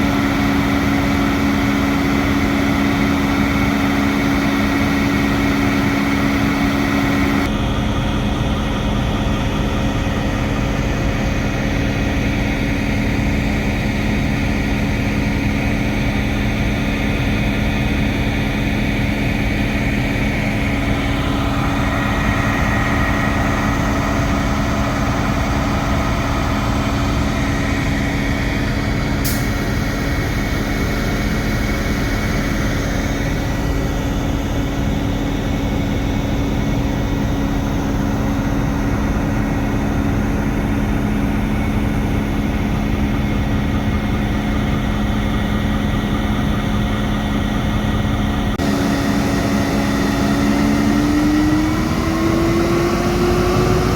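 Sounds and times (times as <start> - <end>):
diesel locomotive engine droning: 0.0 - 53.9.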